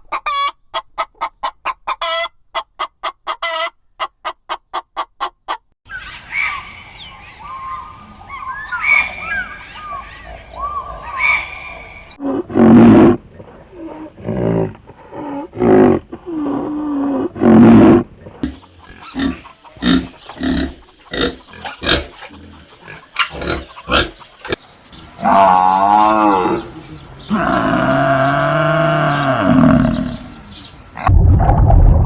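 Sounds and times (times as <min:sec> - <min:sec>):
birds chirping faintly: 0:05.9 - 0:31.1
large animal roaring: 0:12.2 - 0:18.4, 0:25.2 - 0:30.4
animal grunting: 0:12.2 - 0:24.2, 0:25.2 - 0:31.1.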